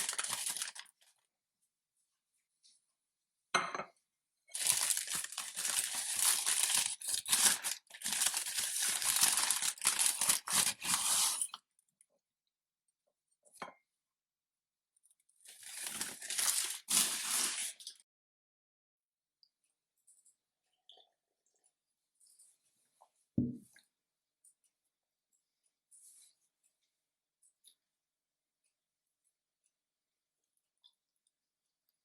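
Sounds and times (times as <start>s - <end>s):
thin material tearing and crinkling: 0.0s - 0.9s, 4.5s - 11.6s, 15.5s - 18.0s.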